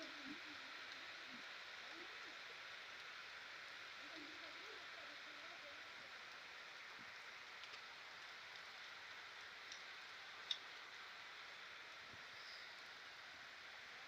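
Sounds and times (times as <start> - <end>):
rain drop ticks: 0.0 - 12.6
heavy rain hiss: 0.0 - 14.0.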